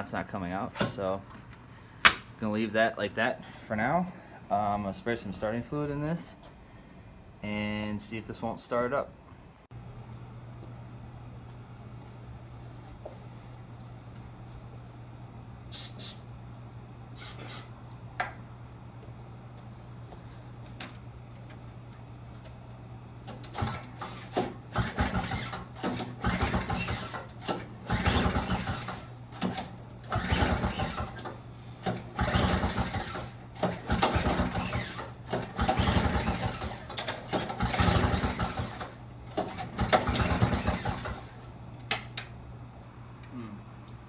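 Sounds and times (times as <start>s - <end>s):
engine cranking from rope pulls: 23.3s - 41.4s.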